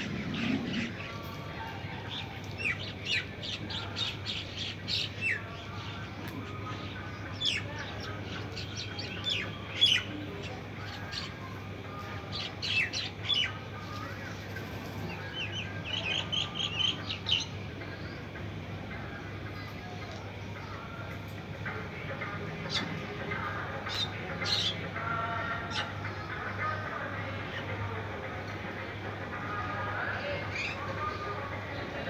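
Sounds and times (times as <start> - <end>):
small birds chirping: 0.0 - 18.4.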